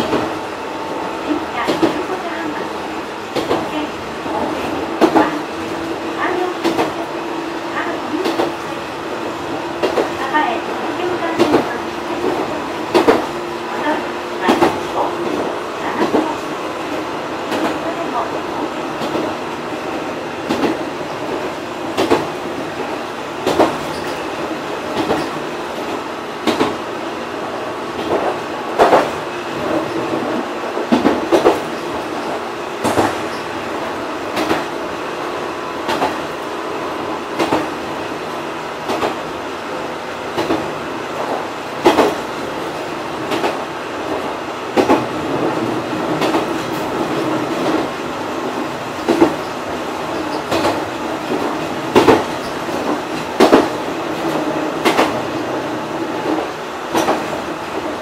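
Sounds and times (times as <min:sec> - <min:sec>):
railcar running hum: 0:00.0 - 0:58.0
wheels clacking over rail joints: 0:03.3 - 0:26.9, 0:40.3 - 0:58.0.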